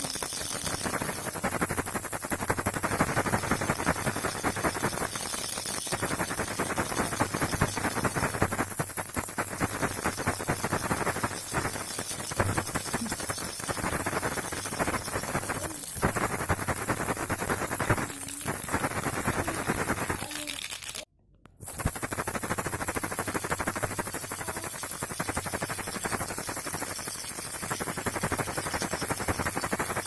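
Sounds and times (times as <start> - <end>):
baby rattle shaken: 0.0 - 30.0
steady high hiss: 0.0 - 30.0.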